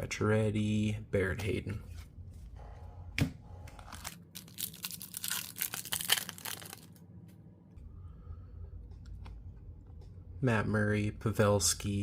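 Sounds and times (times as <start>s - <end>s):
card pack wrapper crinkling: 3.9s - 7.0s.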